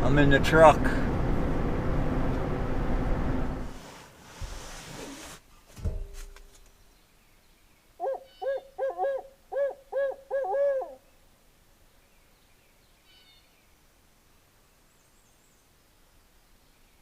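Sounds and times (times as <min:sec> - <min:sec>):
owl hooting: 0:08.0 - 0:11.0.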